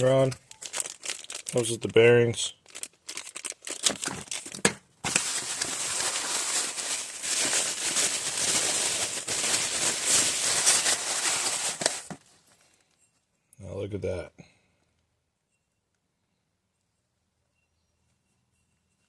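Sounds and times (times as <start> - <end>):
packaging crinkling: 0.0 - 12.9.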